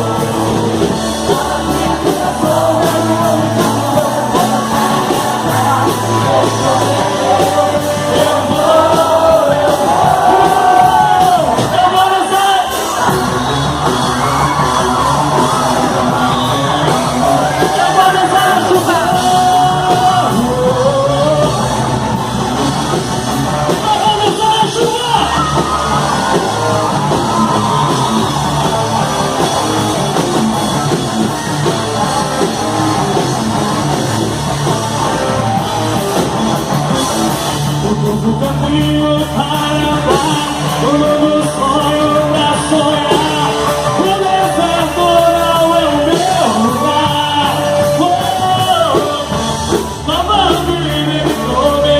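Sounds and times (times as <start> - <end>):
person singing: 0.0 - 12.7, 15.4 - 21.9, 37.6 - 51.9
live rock band playing: 0.0 - 51.9.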